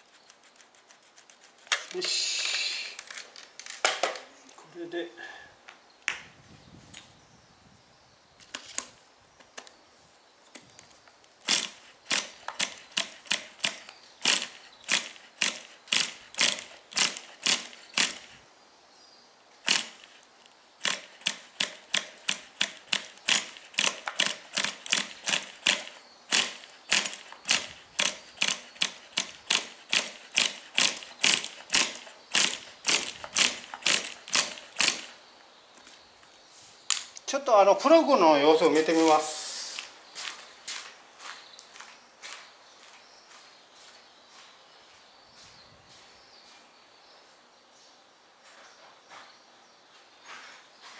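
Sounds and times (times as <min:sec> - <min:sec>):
ratchet clicking: 0:11.5 - 0:18.4, 0:19.7 - 0:20.2, 0:20.8 - 0:35.2.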